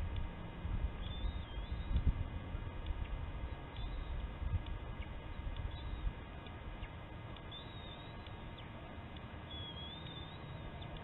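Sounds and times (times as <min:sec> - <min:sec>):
wind rumble on microphone: 0:00.0 - 0:07.4
thin wavering bird calls: 0:01.0 - 0:02.2, 0:02.9 - 0:11.0.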